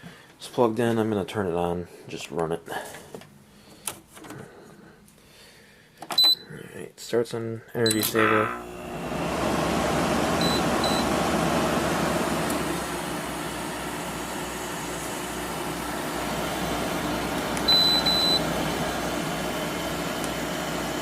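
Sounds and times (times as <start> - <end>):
short high beeps: 7.9 - 8.6
air conditioner fan blowing: 8.6 - 21.0.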